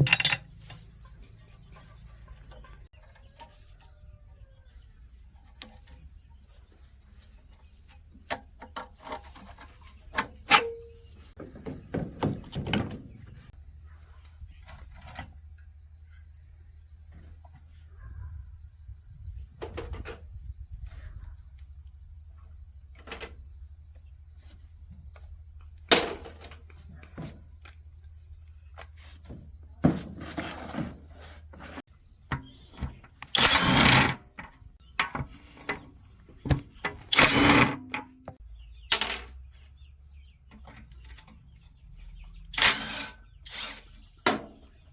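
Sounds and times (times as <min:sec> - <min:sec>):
tools clinking and knocking: 0:00.0 - 0:00.8, 0:07.9 - 0:13.5, 0:25.9 - 0:27.4, 0:32.3 - 0:39.3
insects droning: 0:00.0 - 0:44.9.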